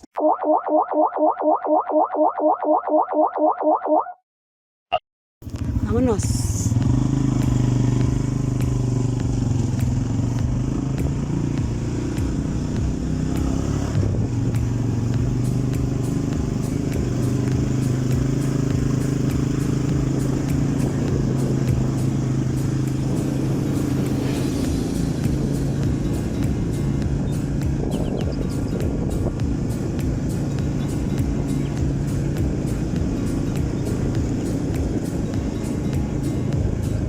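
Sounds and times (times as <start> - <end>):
motorcycle engine running: 5.4 - 37.0.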